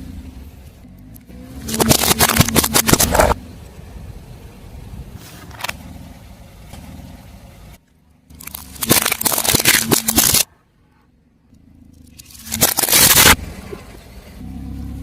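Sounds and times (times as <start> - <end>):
car engine rumble: 0.0 - 15.0
tyre crushing something brittle: 1.6 - 3.4, 8.3 - 10.5, 12.1 - 13.4.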